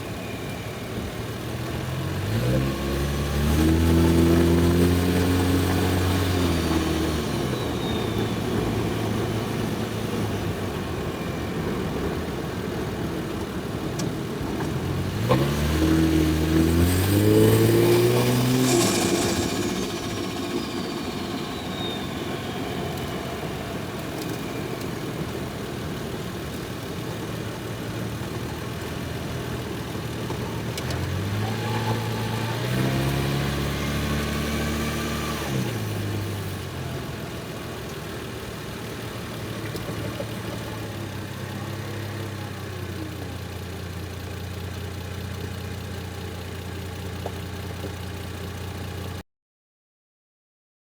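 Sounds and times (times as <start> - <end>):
car engine revving: 1.0 - 46.6
turbo whistle: 5.8 - 9.9, 16.5 - 25.0.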